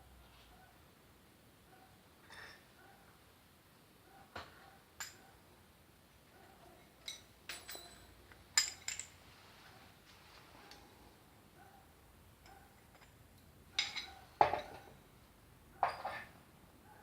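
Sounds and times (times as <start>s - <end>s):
metal parts and tools clinking: 5.0s - 5.3s, 6.8s - 9.2s, 12.4s - 15.0s.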